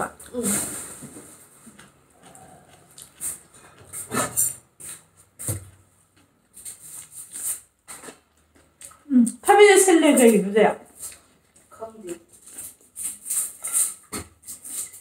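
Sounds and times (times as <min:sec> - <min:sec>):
person chewing food: 0:01.6 - 0:05.1, 0:08.0 - 0:09.4
lip smacks and mouth clicks: 0:02.3 - 0:03.6.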